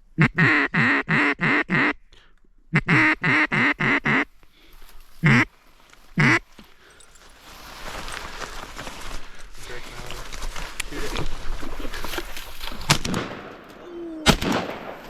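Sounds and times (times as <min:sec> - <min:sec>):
duck call quacks: 0:00.2 - 0:02.0, 0:02.7 - 0:04.3, 0:05.2 - 0:05.5, 0:06.2 - 0:06.4
rustling: 0:04.4 - 0:13.4.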